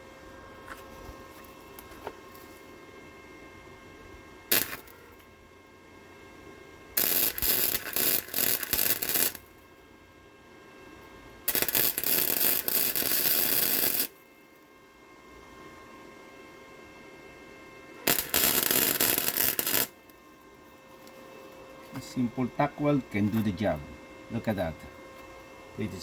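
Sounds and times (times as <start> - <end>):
welding arc crackling and sizzling: 4.5 - 5.2, 7.0 - 9.6, 11.5 - 14.2, 18.0 - 20.2.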